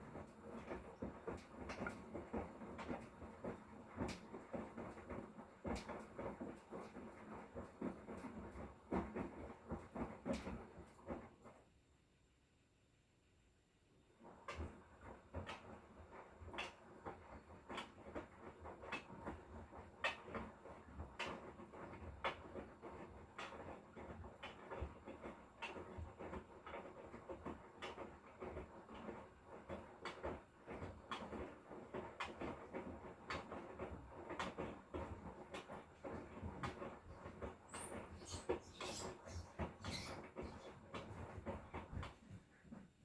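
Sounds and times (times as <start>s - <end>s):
washing machine drum tumbling: 14.2s - 43.0s.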